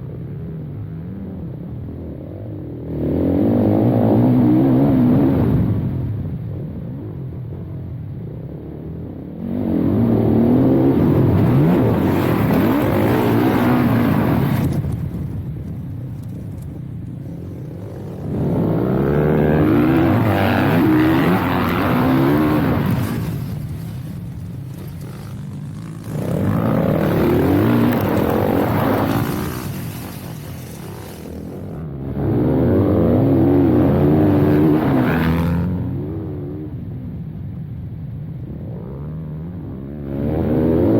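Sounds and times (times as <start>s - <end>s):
dirt bike engine accelerating: 9.4s - 36.2s.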